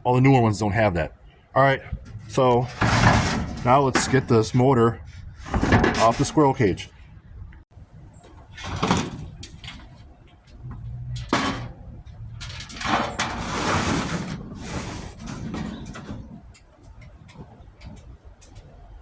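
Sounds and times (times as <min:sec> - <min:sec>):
metal clanking and scraping: 0:01.8 - 0:06.9, 0:08.4 - 0:18.0.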